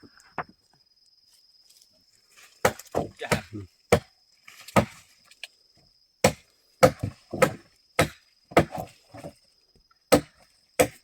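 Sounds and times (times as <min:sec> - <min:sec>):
sharp wooden knocks: 0:06.2 - 0:09.3.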